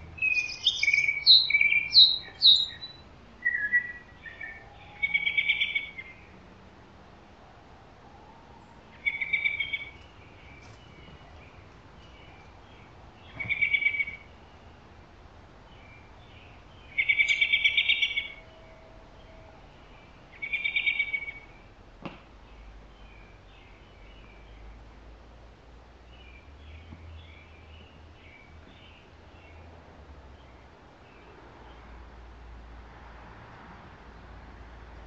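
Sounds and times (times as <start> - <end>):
songbird trilling: 0.2 - 6.3, 8.9 - 14.7, 15.8 - 21.6.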